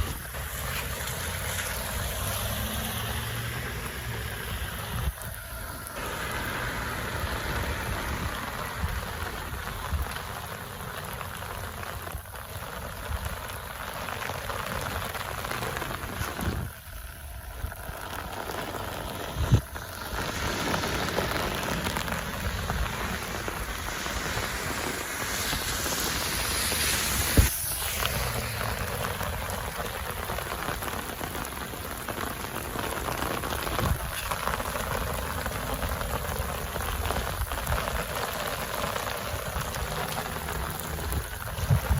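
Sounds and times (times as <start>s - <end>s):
rain falling: 0.0s - 41.9s.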